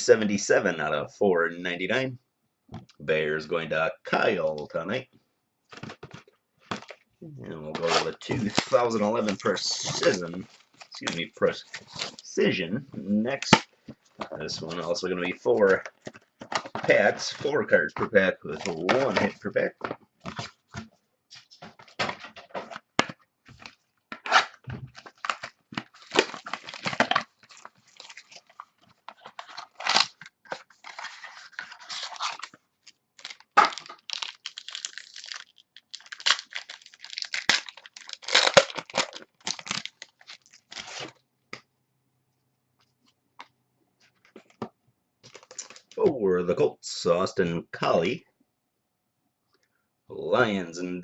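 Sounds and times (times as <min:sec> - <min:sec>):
card packs tearing and crinkling: 0:07.6 - 0:12.5, 0:18.4 - 0:20.6, 0:21.6 - 0:41.2
cards being handled: 0:13.4 - 0:35.4.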